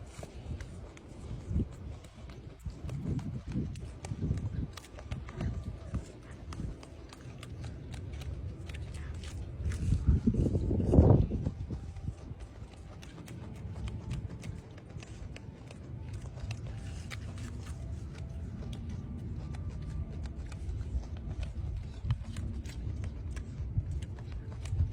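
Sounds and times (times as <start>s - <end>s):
bird pecking clicks: 12.0s - 24.9s.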